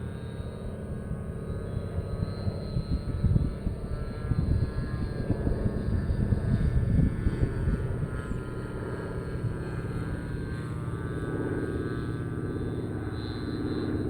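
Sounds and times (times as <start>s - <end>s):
model airplane engine in flight: 0.0s - 14.0s
wind buffeting microphone: 1.9s - 11.4s.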